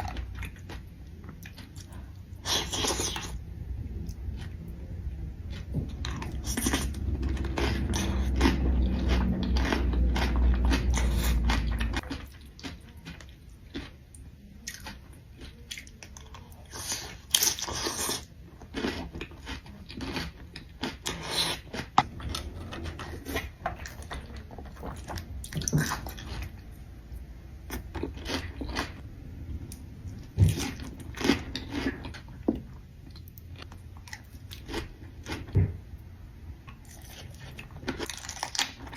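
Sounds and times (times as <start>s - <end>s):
person chewing crunchy food: 0.0s - 3.4s, 5.4s - 26.9s, 27.7s - 29.1s, 29.7s - 35.6s, 36.7s - 38.9s
loud low hum: 3.4s - 12.0s.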